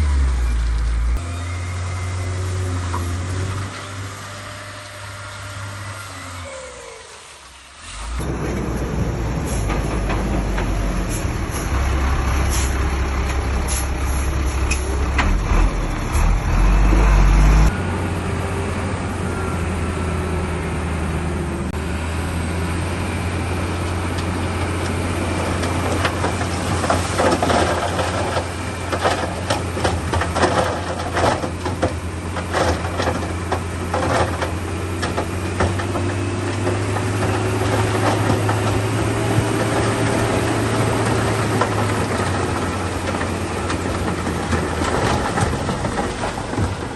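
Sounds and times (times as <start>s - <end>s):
heavy diesel engine running: 7.9s - 46.9s
sharp knocks and clatter: 25.6s - 46.9s.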